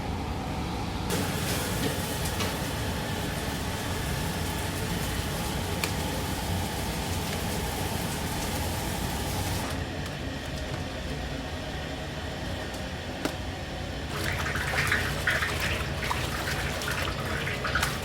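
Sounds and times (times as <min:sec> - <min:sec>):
kitchen roar: 0:00.5 - 0:18.0
wok sizzling: 0:01.1 - 0:09.8.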